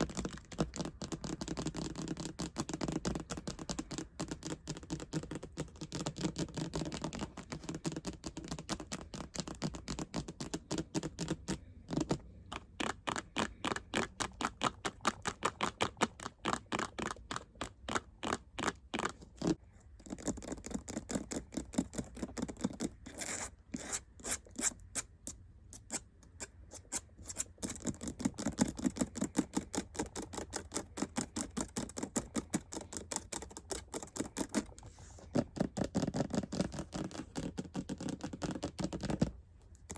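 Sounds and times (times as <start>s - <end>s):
fast sharp tapping: 0.0s - 22.9s.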